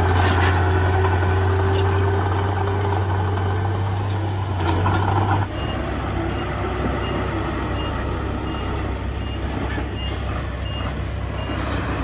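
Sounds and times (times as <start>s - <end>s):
diesel engine running: 0.0s - 12.0s
reversing alarm beeping: 5.5s - 11.7s.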